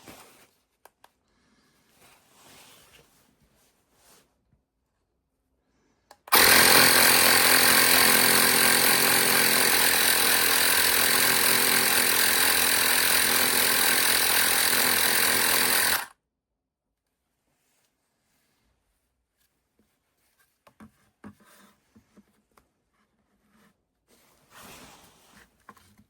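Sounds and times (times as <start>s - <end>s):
electric air pump running: 6.3s - 16.1s.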